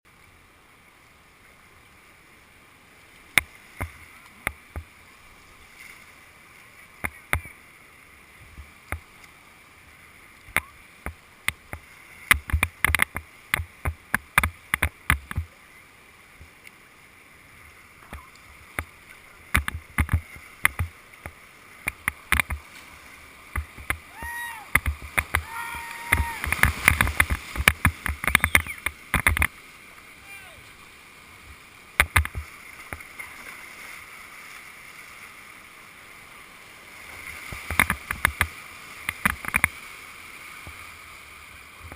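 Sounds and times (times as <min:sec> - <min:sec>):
water rushing over rapid: 0:00.1 - 0:41.9
sharp knocks and clacks: 0:26.4 - 0:29.5.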